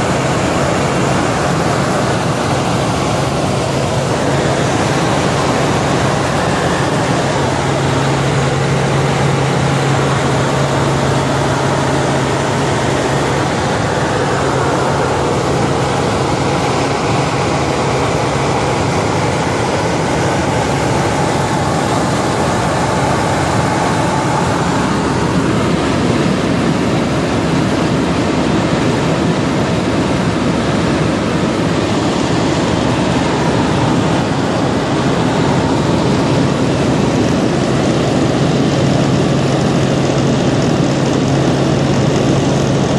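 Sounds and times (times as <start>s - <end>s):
low hum: 0.0s - 26.6s
helicopter in flight: 0.0s - 42.9s.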